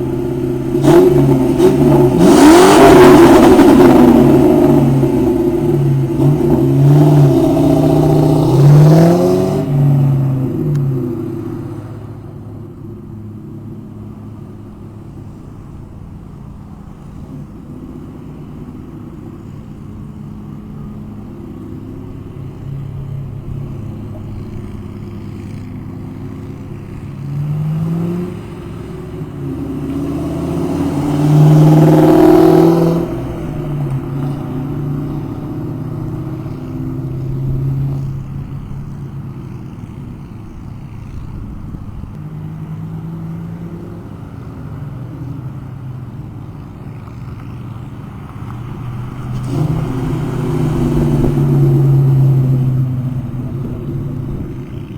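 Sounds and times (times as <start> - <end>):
car engine revving: 0.0 - 12.7, 20.5 - 54.9.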